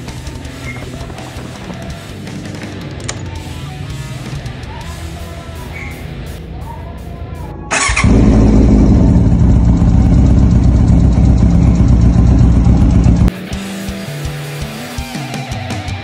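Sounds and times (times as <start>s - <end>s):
motorcycle engine starting and idling: 7.7s - 13.3s.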